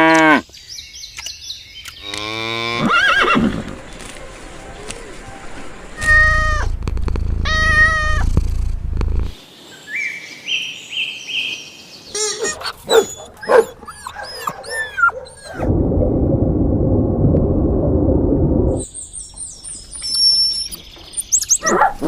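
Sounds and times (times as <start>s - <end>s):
animal calls: 12.1s - 15.7s.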